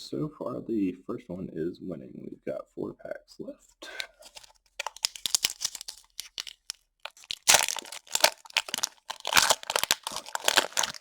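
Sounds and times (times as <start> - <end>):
foil wrapper crinkling and tearing: 4.1 - 11.0.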